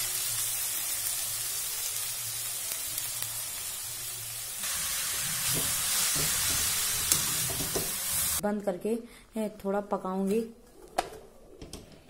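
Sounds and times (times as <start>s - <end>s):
carrots sizzling in hot fat: 0.0s - 8.4s.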